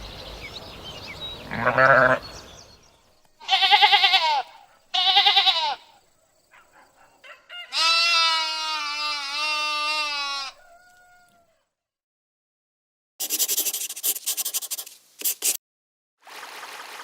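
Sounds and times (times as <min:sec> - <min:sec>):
sheep bleating: 0:01.5 - 0:02.3, 0:03.4 - 0:06.0, 0:07.6 - 0:10.6.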